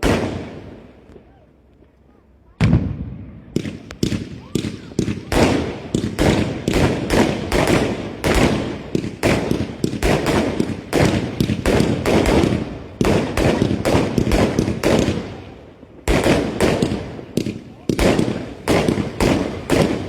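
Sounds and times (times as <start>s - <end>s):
fireworks bangs: 0.0s - 1.3s, 2.6s - 20.0s.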